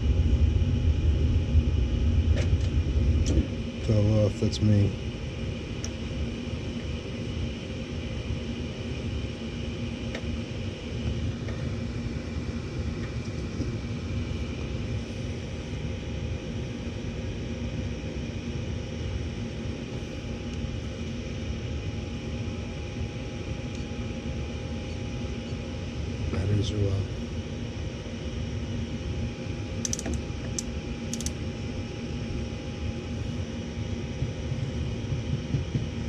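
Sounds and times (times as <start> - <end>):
gas furnace rumbling: 0.0 - 36.0
motor hum: 29.3 - 31.9.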